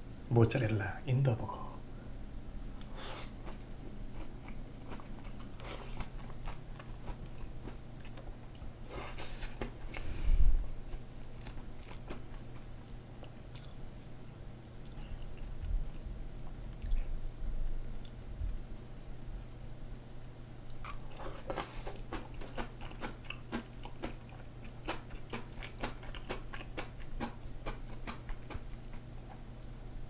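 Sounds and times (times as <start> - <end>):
chewing noodles: 2.8 - 10.0, 10.8 - 17.1, 20.7 - 29.4.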